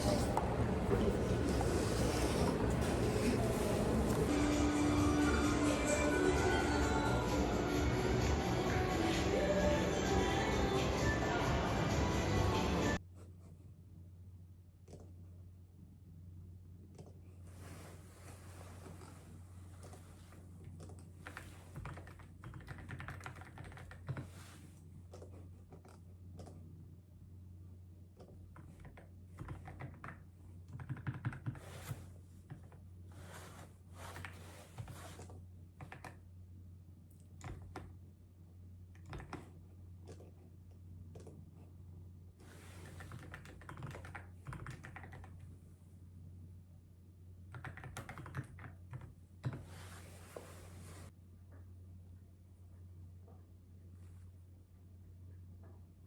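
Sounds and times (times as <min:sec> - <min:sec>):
keyboard typing: 0:20.8 - 0:24.3, 0:28.2 - 0:31.6, 0:39.0 - 0:40.4, 0:42.8 - 0:45.4, 0:47.5 - 0:49.6.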